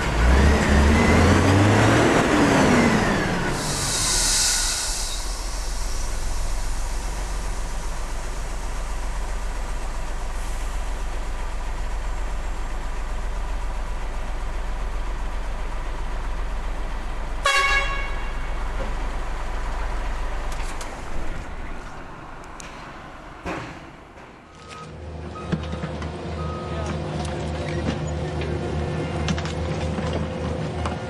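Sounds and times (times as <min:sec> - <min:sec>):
remote-control truck engine rumble: 0:00.0 - 0:31.0
short horn toot: 0:17.4 - 0:18.5.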